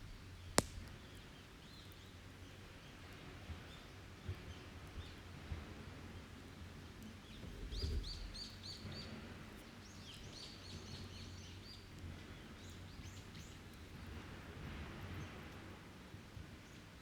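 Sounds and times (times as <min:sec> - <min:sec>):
faint ticks of wood fire: 0:00.0 - 0:03.2, 0:11.8 - 0:16.6.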